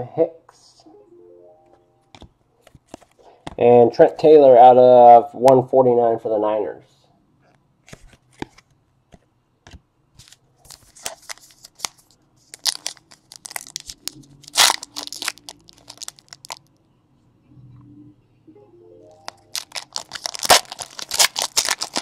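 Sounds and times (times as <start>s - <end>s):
card pack wrappers crinkling: 10.2s - 16.7s, 19.2s - 22.0s.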